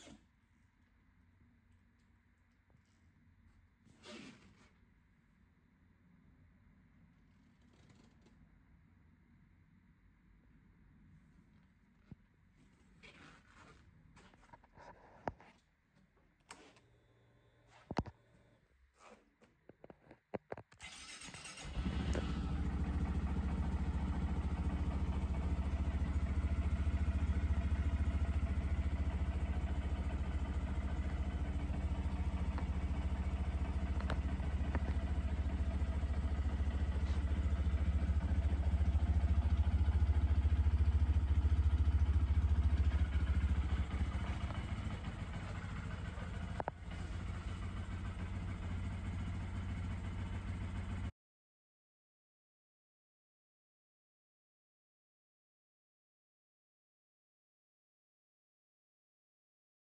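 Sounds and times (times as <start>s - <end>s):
motorcycle engine idling: 21.2s - 51.1s.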